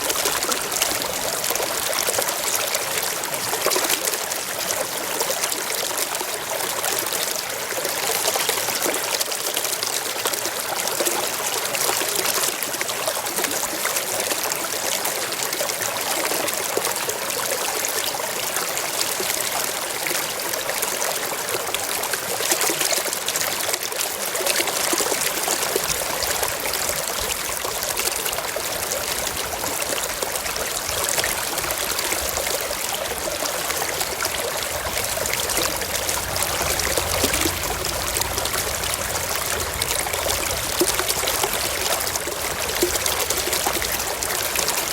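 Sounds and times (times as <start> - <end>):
stream running over rocks: 0.0 - 44.9
faint low rumble: 34.0 - 43.0.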